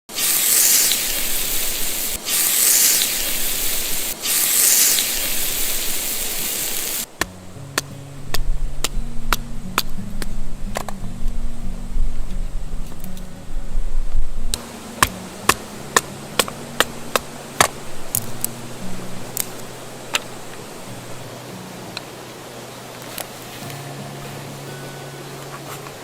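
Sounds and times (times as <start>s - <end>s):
loud hiss: 0.1s - 10.5s, 14.5s - 26.0s
music with low sustained notes: 7.1s - 26.0s.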